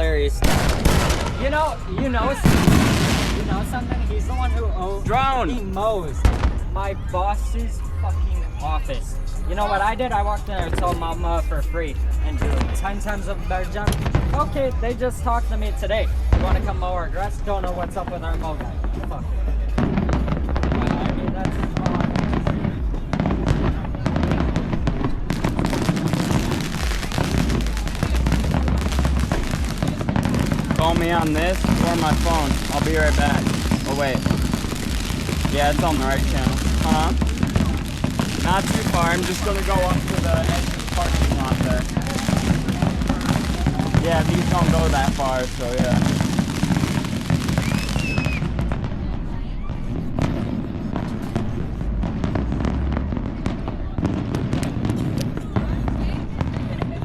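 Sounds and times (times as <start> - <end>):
low rumble: 0.0 - 9.6, 10.2 - 56.4
fireworks bangs and crackles: 0.0 - 57.0
firework whistle: 45.9 - 48.7.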